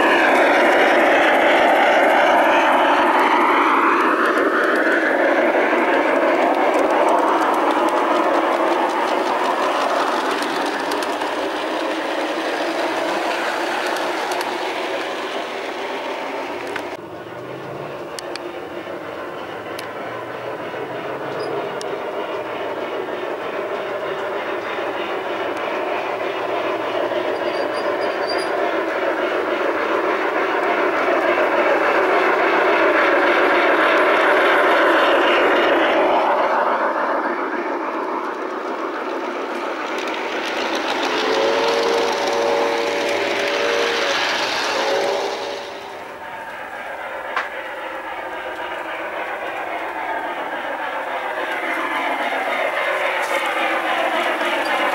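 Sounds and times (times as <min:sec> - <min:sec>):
model train running on track: 0:00.0 - 0:54.9
train horn toots: 0:41.2 - 0:45.5.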